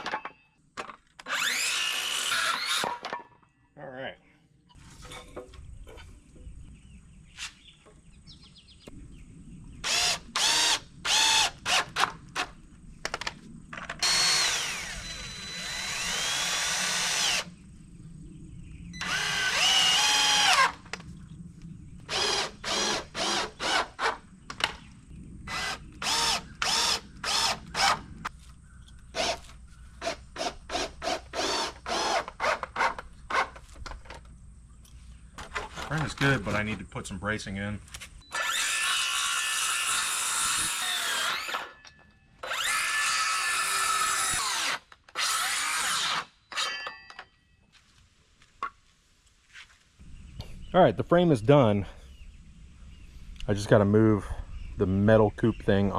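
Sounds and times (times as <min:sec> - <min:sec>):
cordless drill driving screws: 0:01.2 - 0:03.0, 0:09.8 - 0:12.5, 0:14.0 - 0:17.5, 0:19.0 - 0:20.8, 0:22.1 - 0:24.2, 0:25.5 - 0:28.0, 0:29.2 - 0:33.6, 0:38.3 - 0:41.8, 0:42.4 - 0:46.9.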